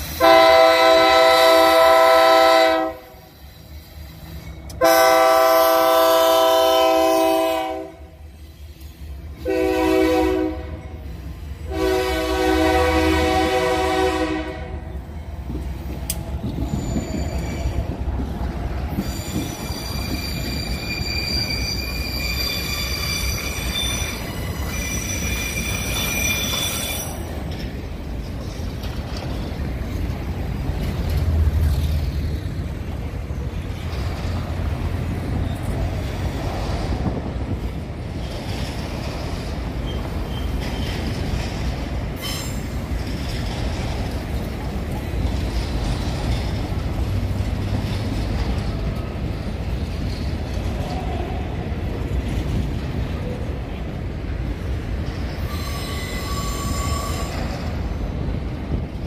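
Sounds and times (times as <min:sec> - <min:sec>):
train wheels rumbling on rails: 0:00.0 - 0:59.0
high-pitched wheel squeal: 0:16.5 - 0:18.0, 0:18.9 - 0:27.4, 0:55.2 - 0:57.7.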